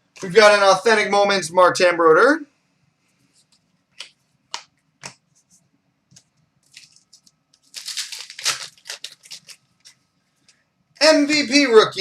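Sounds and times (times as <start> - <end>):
wrapper crinkling: 6.6 - 10.0.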